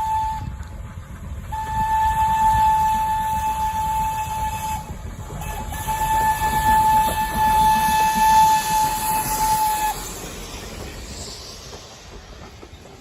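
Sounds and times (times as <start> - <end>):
steam locomotive whistle: 0.0 - 0.8, 1.4 - 10.4
train rumble: 0.0 - 13.0.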